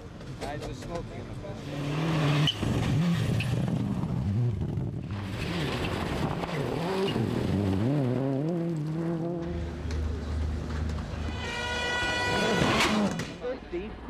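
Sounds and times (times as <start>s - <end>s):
car engine revving: 1.6s - 11.4s.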